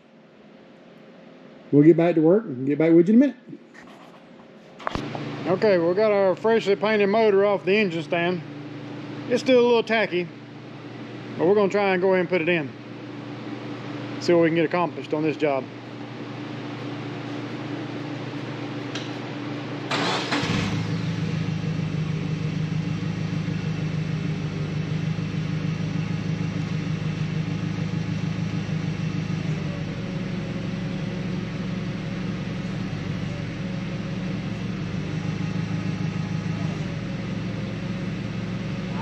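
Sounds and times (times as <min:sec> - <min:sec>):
engine cranking and idling: 0:19.8 - 0:39.0.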